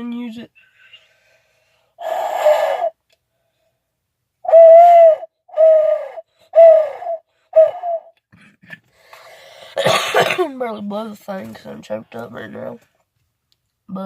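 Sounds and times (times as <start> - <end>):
owl call hoots: 2.0 - 3.0, 4.4 - 8.1.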